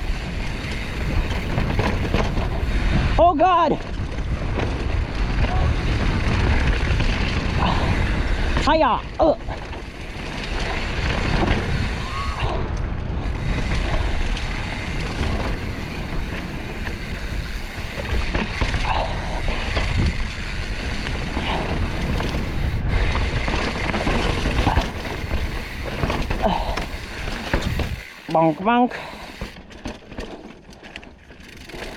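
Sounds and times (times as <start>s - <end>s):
wind noise on microphone: 0.0s - 28.3s
bike tyres and frame rattling: 0.0s - 31.9s.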